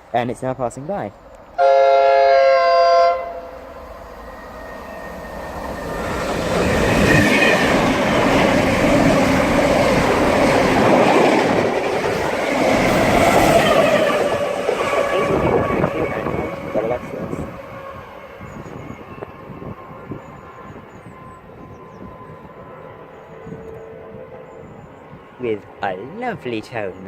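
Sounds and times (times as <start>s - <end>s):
train passing: 0.0s - 27.0s
train horn: 1.6s - 3.7s, 14.9s - 24.9s.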